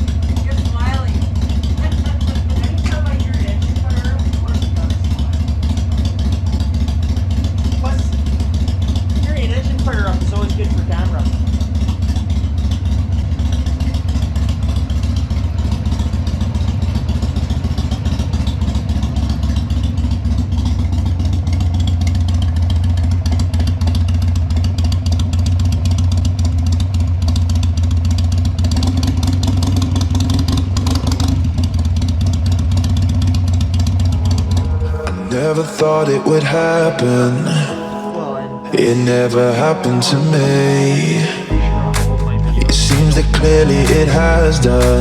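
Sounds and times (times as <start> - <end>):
motorcycle engine idling: 0.0 - 34.8.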